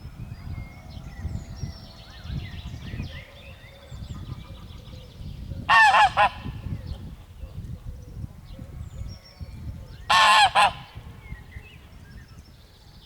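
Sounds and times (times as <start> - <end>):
faint songbird chirps: 0.0 - 5.7
goose honking: 5.7 - 6.4, 10.1 - 10.9.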